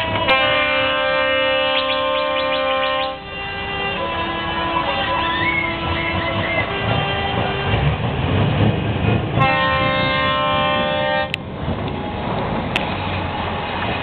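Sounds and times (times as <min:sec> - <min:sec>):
truck air horn blast: 0:00.0 - 0:07.9, 0:09.4 - 0:11.4
diesel truck engines rumbling: 0:00.0 - 0:14.0.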